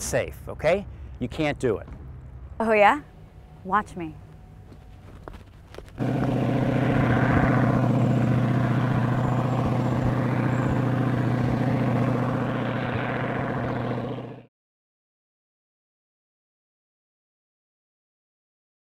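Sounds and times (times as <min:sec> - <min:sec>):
propeller airplane engine running: 0:01.9 - 0:14.5.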